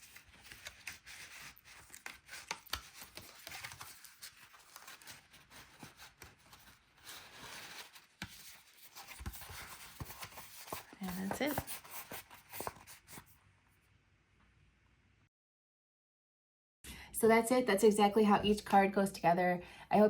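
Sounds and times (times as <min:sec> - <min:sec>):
paper rustling and crinkling: 0:00.0 - 0:13.4.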